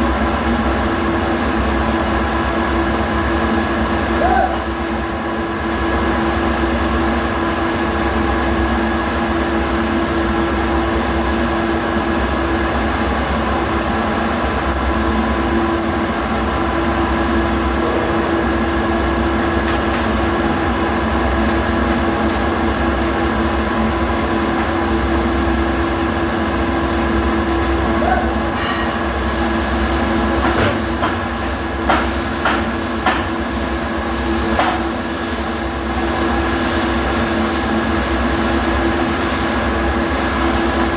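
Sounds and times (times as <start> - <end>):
machine hum: 15.1 - 30.4.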